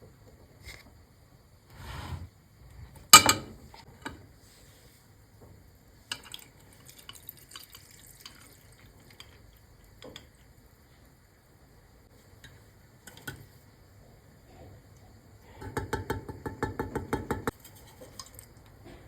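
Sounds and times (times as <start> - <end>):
small drips and ticks: 6.0 - 11.5, 16.6 - 18.8.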